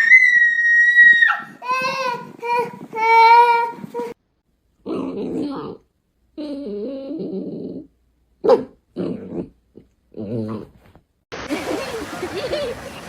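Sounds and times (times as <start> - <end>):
dog growling: 4.8 - 8.0, 8.9 - 10.8.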